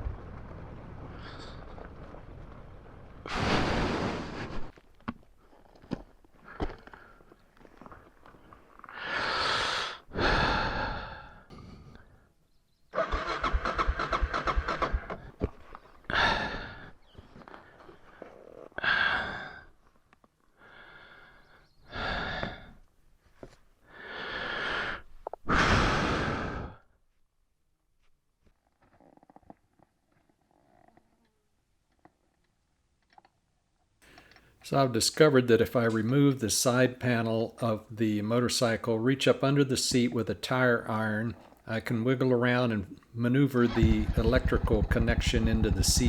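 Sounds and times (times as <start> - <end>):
person breathing heavily: 8.9 - 12.2, 16.1 - 17.0, 23.9 - 26.9
rapid rattle: 13.0 - 15.3, 43.7 - 46.0.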